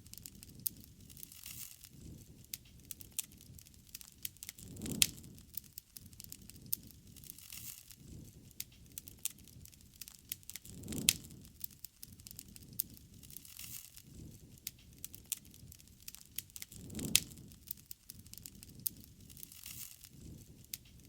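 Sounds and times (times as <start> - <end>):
campfire crackling and popping: 0.0 - 21.0
rush of flame: 0.0 - 21.0.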